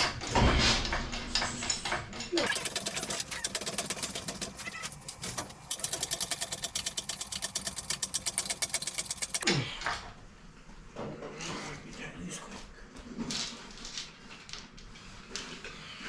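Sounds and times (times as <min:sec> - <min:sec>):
ratchet wrench clicking: 0:02.5 - 0:09.4.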